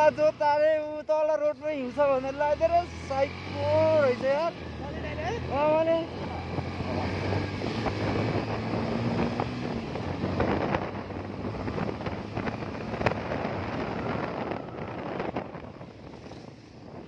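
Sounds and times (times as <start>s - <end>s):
motorcycle engine running: 2.1s - 17.0s
wind buffeting microphone: 4.7s - 17.0s.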